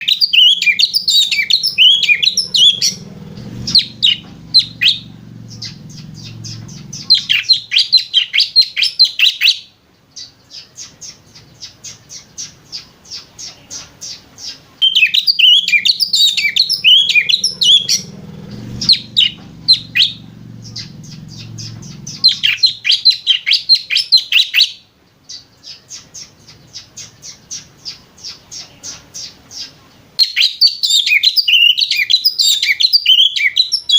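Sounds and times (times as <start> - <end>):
songbird chattering twitter: 0.0 - 9.6, 10.2 - 24.7.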